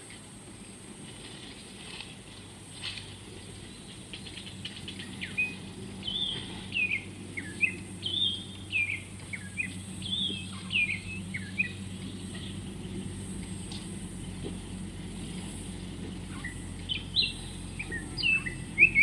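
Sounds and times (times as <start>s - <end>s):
steady low hum: 0.0s - 19.0s
songbird whistling: 4.9s - 12.6s, 16.3s - 19.0s.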